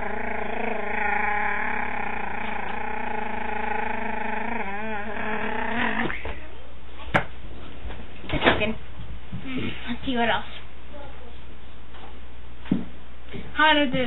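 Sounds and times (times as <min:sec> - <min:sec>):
person droning voice: 0:00.0 - 0:06.3.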